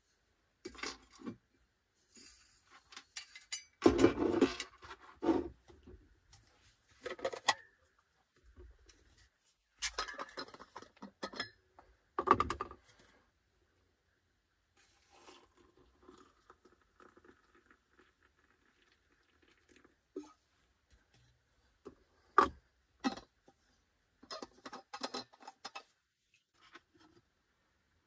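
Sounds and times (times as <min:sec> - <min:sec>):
liquid trickling into a metal mug: 0:15.0 - 0:20.0.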